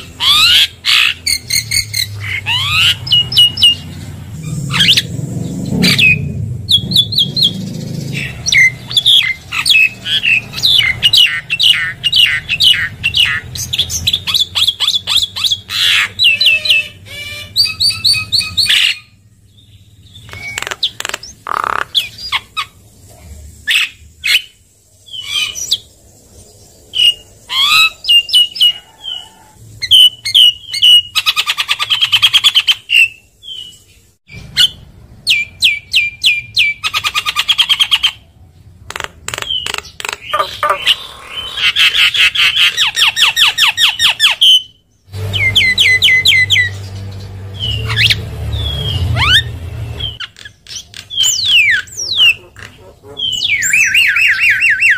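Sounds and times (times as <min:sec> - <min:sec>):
bird chirps and whistles: 0:05.8 - 0:19.2, 0:20.2 - 0:21.0, 0:29.8 - 0:38.2, 0:47.6 - 0:52.4, 0:53.2 - 0:54.9.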